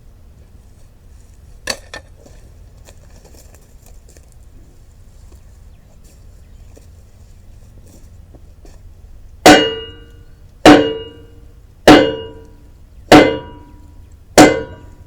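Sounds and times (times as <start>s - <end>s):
hammer blows on steel beam: 9.4s - 15.0s.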